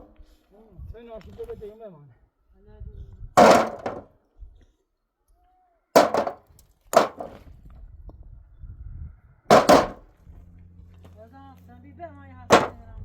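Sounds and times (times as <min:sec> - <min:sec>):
hard objects knocking: 0:03.4 - 0:04.1, 0:06.0 - 0:06.4, 0:07.0 - 0:07.4, 0:09.5 - 0:10.0, 0:12.5 - 0:12.8.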